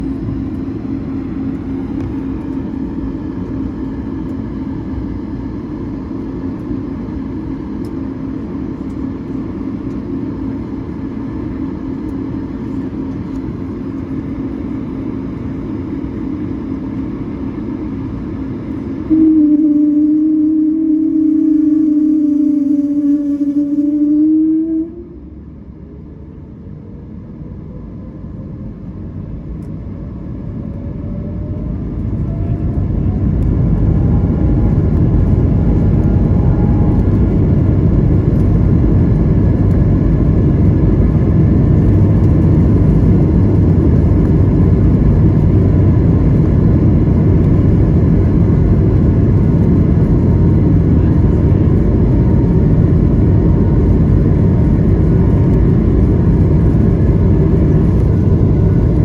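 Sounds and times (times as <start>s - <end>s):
takeoff roll roar: 0.0s - 59.0s
jet engines spooling up: 19.8s - 59.0s.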